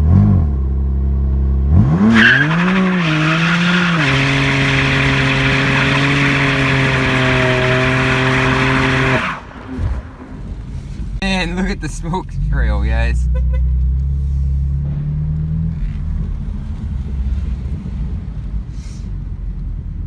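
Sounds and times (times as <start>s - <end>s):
car engine revving: 1.7s - 11.2s
tyres spinning and squealing: 2.0s - 11.1s.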